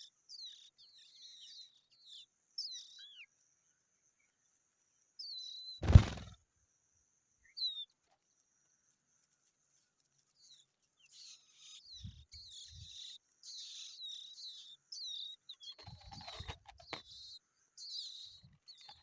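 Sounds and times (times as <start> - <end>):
young skylarks chirping: 0.0 - 3.4, 5.2 - 6.3, 7.4 - 8.0, 10.3 - 19.0
loud thump: 5.8 - 6.3.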